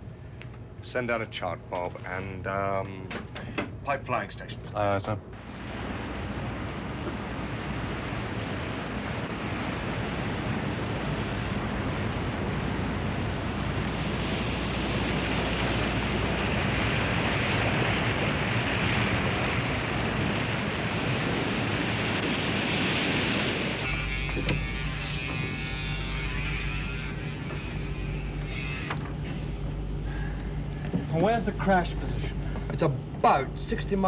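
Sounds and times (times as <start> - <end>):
rush of water and spray: 5.4 - 24.6.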